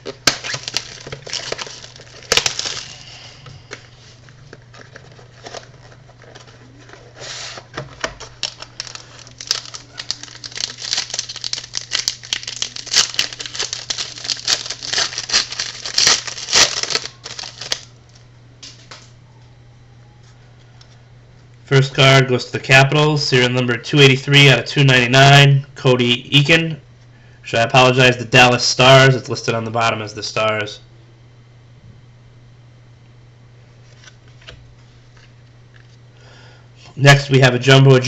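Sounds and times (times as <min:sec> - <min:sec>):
wrapper crinkling and tearing: 0:00.0 - 0:03.2, 0:04.5 - 0:07.2, 0:07.9 - 0:18.0
low electrical hum: 0:00.0 - 0:38.0.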